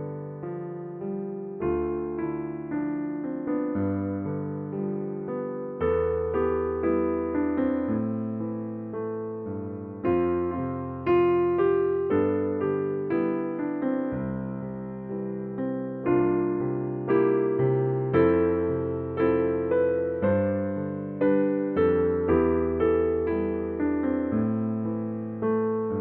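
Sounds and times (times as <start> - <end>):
slow gentle piano music: 0.0 - 26.0.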